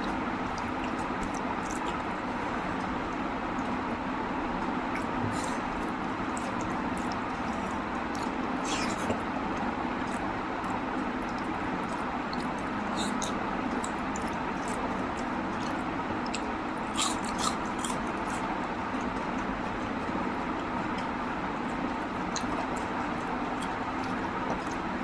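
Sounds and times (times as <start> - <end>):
person chewing food: 0.0 - 3.8, 4.9 - 25.0
wet mouth clicks and smacks: 6.3 - 19.5.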